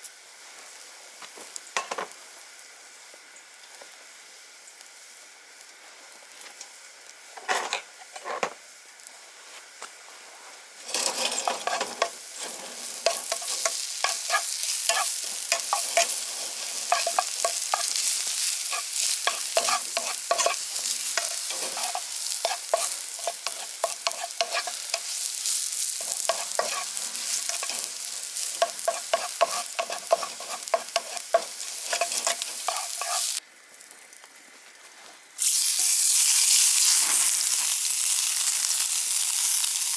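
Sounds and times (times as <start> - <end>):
food sizzling in a pan: 0.0 - 34.1, 35.4 - 39.9
utensil clicking and scraping: 10.9 - 33.4.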